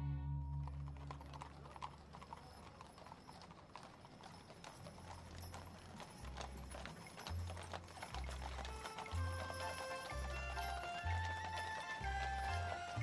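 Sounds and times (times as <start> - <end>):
low bass music notes: 0.0 - 1.0
horse hooves clip-clopping: 0.5 - 13.0.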